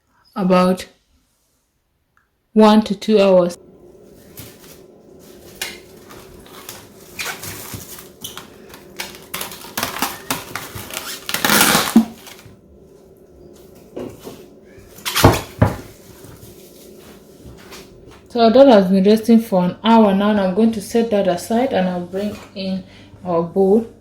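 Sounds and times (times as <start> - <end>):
rustling: 4.0 - 12.6.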